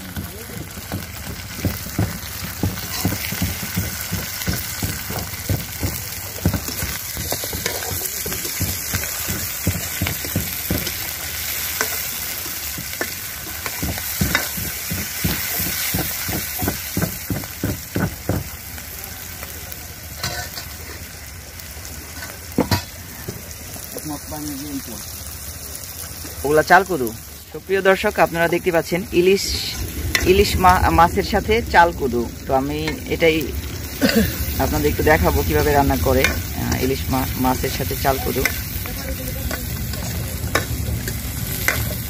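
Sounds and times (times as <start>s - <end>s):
onions sizzling in a pan: 0.0s - 42.0s
utensil scraping and knocking pan: 0.7s - 11.1s.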